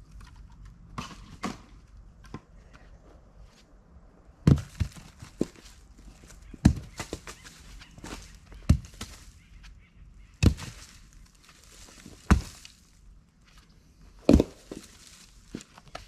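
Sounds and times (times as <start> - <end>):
firewood rounds thudding and knocking: 4.4 - 9.3, 10.4 - 13.0, 14.2 - 16.0.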